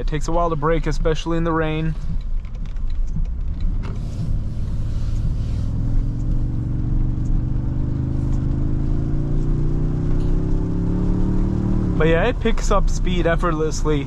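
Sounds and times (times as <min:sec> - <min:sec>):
road noise inside cabin: 0:00.0 - 0:14.0
truck engine accelerating: 0:02.9 - 0:14.0.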